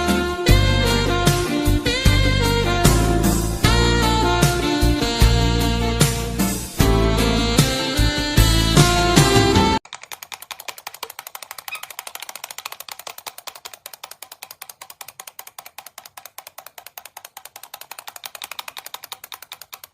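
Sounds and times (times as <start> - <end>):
rapid sharp clicking: 9.8 - 19.9.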